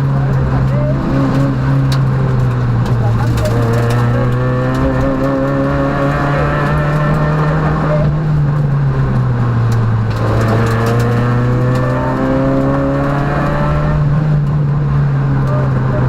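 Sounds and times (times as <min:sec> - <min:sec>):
rally car engine running: 0:00.0 - 0:16.0.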